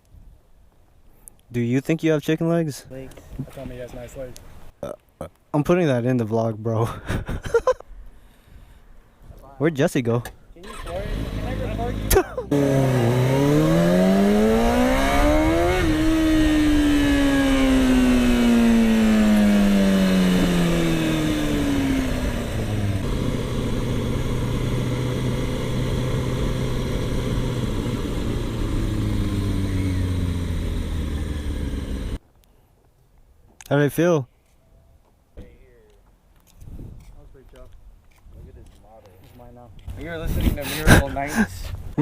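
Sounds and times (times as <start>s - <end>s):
motorcycle engine revving: 10.6s - 32.2s.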